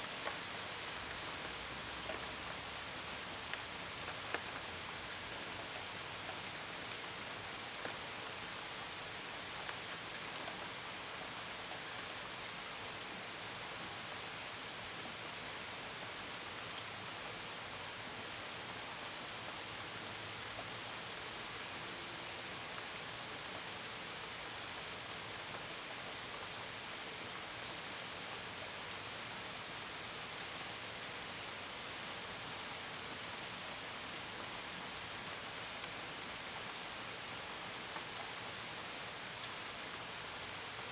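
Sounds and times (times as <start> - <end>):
gentle rain: 0.0 - 40.9.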